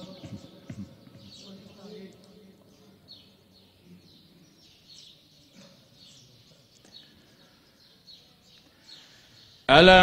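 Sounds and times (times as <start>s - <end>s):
faint bird chirping: 0.0s - 9.8s
faint background noise: 0.0s - 10.0s.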